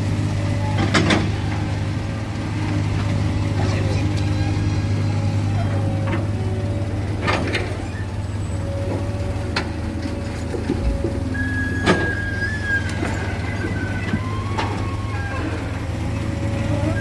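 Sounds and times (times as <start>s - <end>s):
diesel machinery drone: 0.0s - 17.0s
high-pitched squeal: 11.4s - 17.0s.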